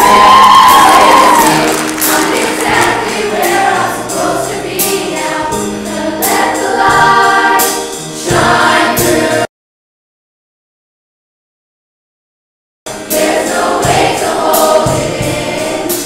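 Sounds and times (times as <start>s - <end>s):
choir singing in harmony: 0.0s - 9.5s, 12.9s - 16.0s
instrumental backing: 0.0s - 9.5s.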